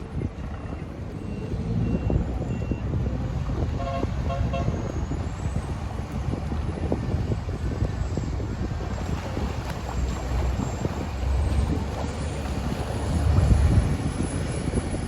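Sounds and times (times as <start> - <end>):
boat engine rumble: 0.0 - 15.0
wind on microphone: 0.0 - 15.0
horn toots: 3.8 - 4.8.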